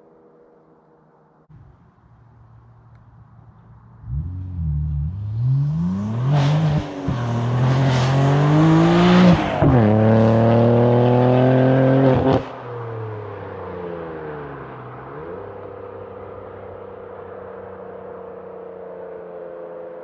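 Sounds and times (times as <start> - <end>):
car engine accelerating hard: 4.0 - 13.1.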